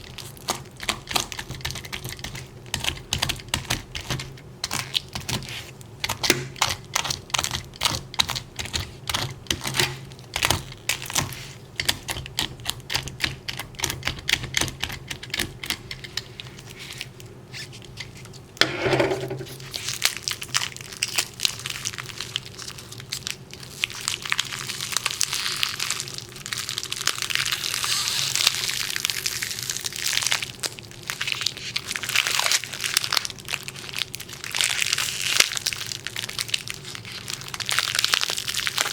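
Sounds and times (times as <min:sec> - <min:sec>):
crinkling crackling rustle: 0:19.5 - 0:38.9.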